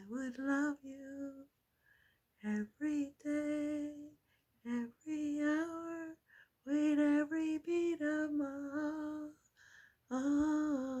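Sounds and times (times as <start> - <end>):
woman singing unaccompanied: 0.0 - 1.5, 2.4 - 9.5, 10.1 - 11.0
woman breathing: 1.7 - 2.4, 6.2 - 6.6, 9.5 - 10.1.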